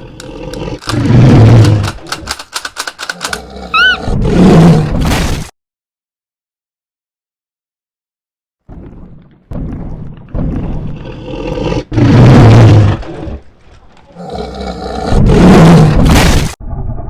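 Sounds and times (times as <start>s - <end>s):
dinosaur roaring: 3.1s - 4.9s.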